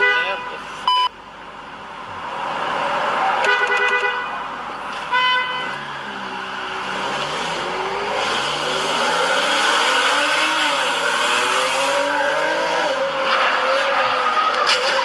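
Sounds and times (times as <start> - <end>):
car horn blasts: 0.0 - 1.1, 3.4 - 4.4, 5.1 - 5.8
road traffic noise: 0.0 - 15.0
vehicle engine revving: 4.8 - 14.8.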